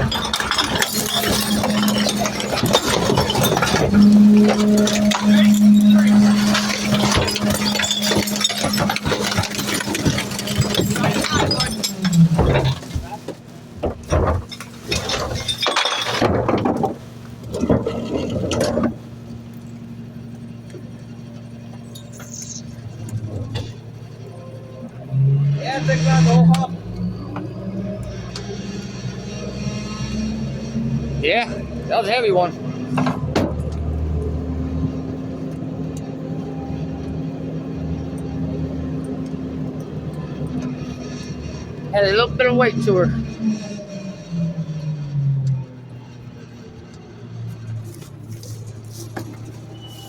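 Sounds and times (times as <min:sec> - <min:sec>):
glass clinking and breaking: 0:00.0 - 0:19.0, 0:21.8 - 0:22.9
garbage clattering: 0:00.0 - 0:24.6, 0:47.6 - 0:50.0.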